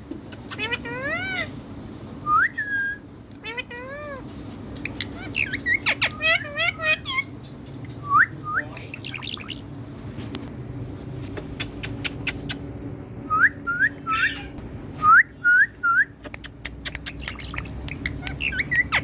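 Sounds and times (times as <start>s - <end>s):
sharp clicks: 16.2s - 18.4s
parrot whistling: 16.9s - 19.0s.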